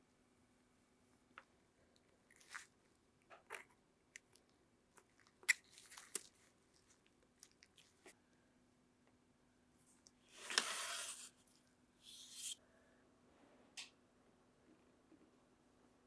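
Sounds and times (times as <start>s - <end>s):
clicks and scrapes of model work: 10.0s - 12.6s.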